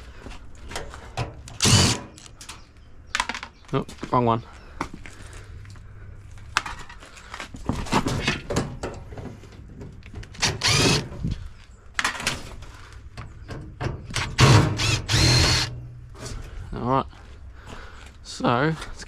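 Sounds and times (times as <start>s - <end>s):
power drill spinning up: 1.6s - 2.0s, 10.4s - 11.1s, 14.2s - 15.7s.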